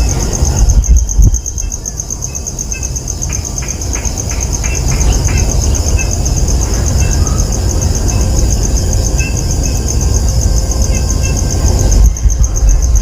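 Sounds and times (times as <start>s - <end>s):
insect chirring: 0.0s - 13.0s
low rumble: 4.8s - 13.0s.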